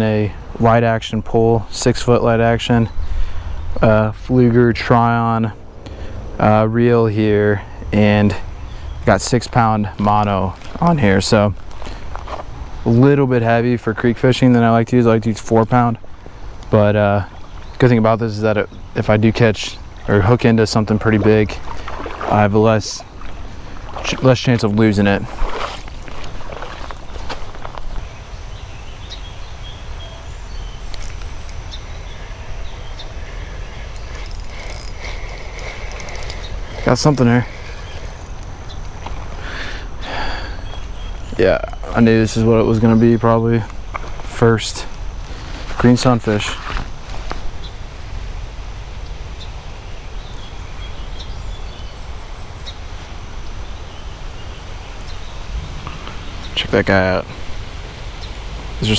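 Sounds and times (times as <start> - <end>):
steady low rumble: 0.4 - 28.7
bird chirping: 14.6 - 46.6, 49.0 - 57.4.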